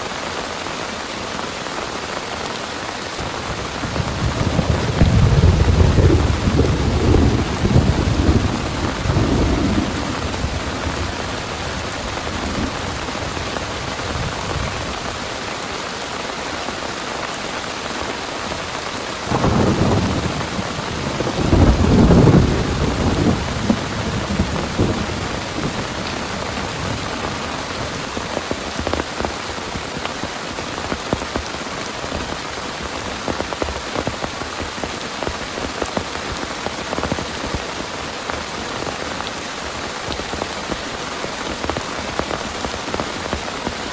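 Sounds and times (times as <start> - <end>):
heavy rain pouring: 0.0 - 43.9
thunder rumbling: 3.2 - 15.1, 19.3 - 28.2.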